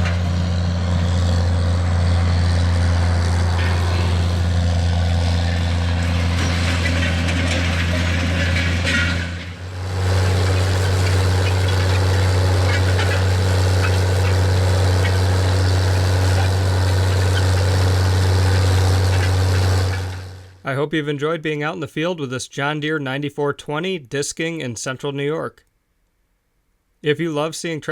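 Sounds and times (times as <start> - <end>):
tractor diesel engine drone: 0.0 - 20.8.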